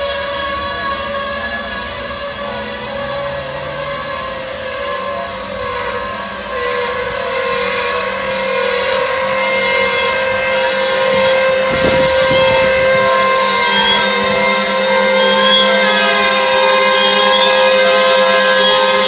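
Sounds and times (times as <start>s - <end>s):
freight train rolling by: 0.0s - 19.0s
metallic wheel squeals: 6.0s - 19.0s.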